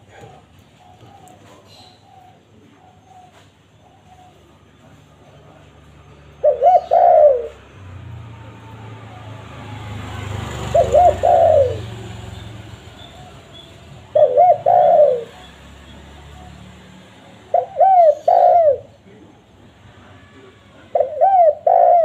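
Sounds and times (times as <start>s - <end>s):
dove cooing: 0.0s - 19.0s, 20.1s - 22.0s.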